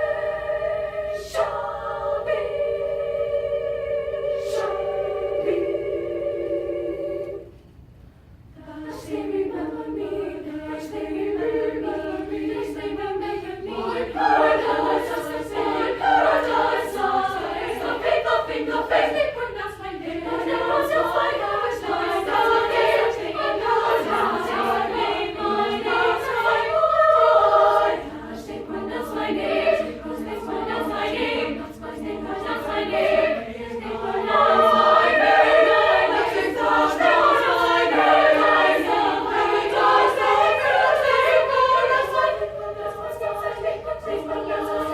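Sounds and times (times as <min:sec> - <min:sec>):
choir singing a cappella: 0:00.0 - 0:07.6, 0:08.6 - 0:44.9.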